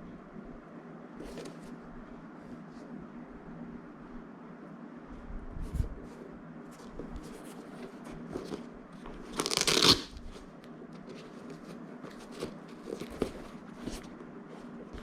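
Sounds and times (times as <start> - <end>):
packaging clicks and rustles: 11.1 - 14.2.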